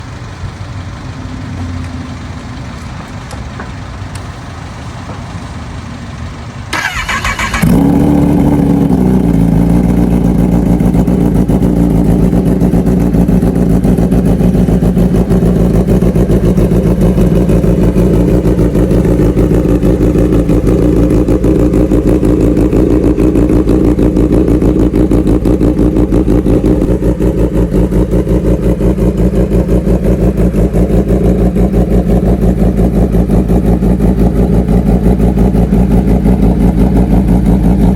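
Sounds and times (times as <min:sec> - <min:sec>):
motorcycle engine revving and idling: 0:00.0 - 0:37.9
engine starter cranking: 0:06.7 - 0:08.0.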